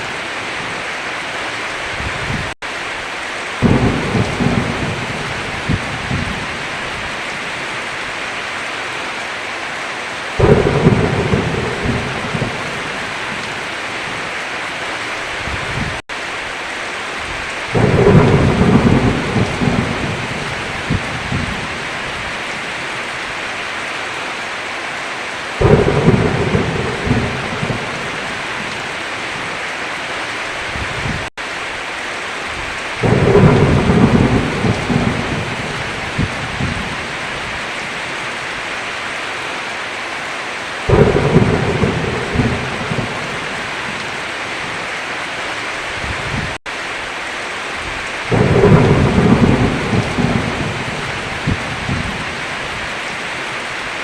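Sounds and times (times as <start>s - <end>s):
heavy rain: 0.0s - 54.0s
thunder crashing: 3.6s - 6.5s, 10.4s - 13.6s, 17.7s - 21.8s, 25.6s - 28.8s, 33.0s - 37.1s, 40.9s - 44.2s, 48.3s - 52.3s.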